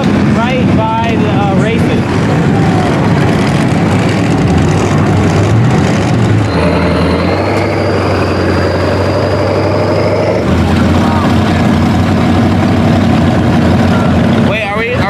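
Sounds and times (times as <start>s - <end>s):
truck engine running: 0.0s - 15.0s
faint rising whine: 6.5s - 11.2s.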